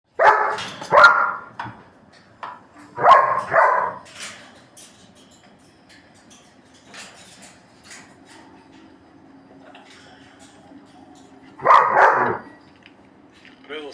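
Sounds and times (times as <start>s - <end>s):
dog barking: 0.1s - 1.5s, 3.0s - 4.1s, 11.6s - 12.6s.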